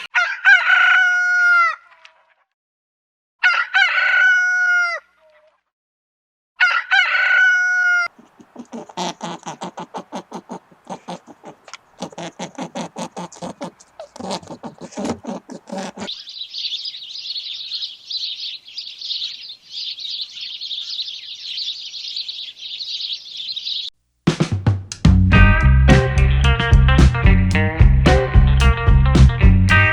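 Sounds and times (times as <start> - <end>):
rooster crowing: 0.2 - 1.8, 3.4 - 5.0, 6.6 - 8.1
rapid clicking calls: 8.1 - 23.9
high-pitched chirping chorus: 16.0 - 23.9.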